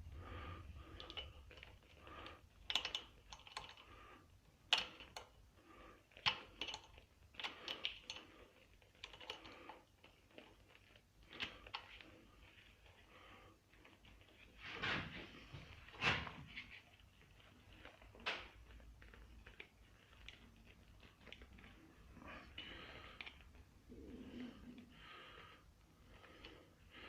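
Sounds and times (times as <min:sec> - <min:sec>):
small metal parts clicking: 0:02.6 - 0:03.9, 0:06.1 - 0:08.2.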